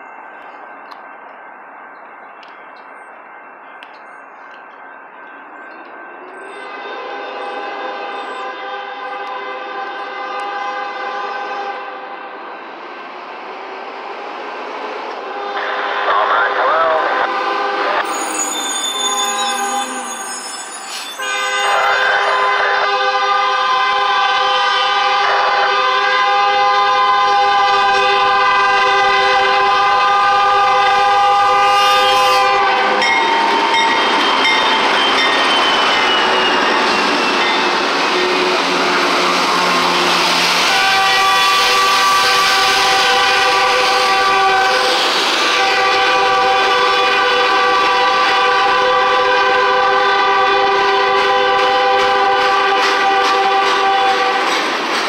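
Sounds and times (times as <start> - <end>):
locomotive engine and wheels rumbling: 0.0 - 55.0
train horn chord: 6.6 - 12.2, 21.2 - 33.2, 38.2 - 44.9, 45.5 - 54.4.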